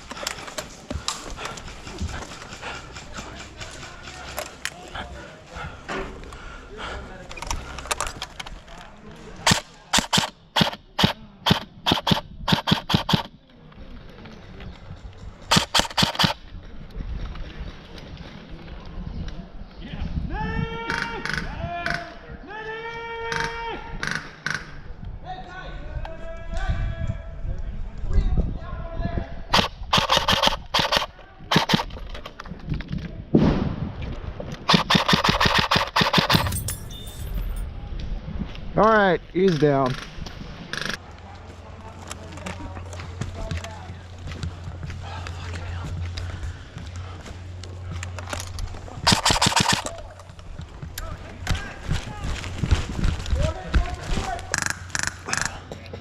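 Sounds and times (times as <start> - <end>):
airsoft gun shots: 9.4 - 13.3, 15.5 - 16.4, 29.5 - 31.9, 34.7 - 36.5, 49.0 - 50.0.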